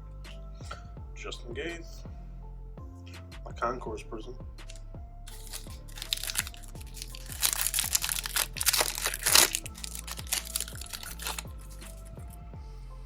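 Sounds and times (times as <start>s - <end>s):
background music: 0.0s - 13.0s
foil wrapper crinkling and tearing: 5.3s - 12.1s.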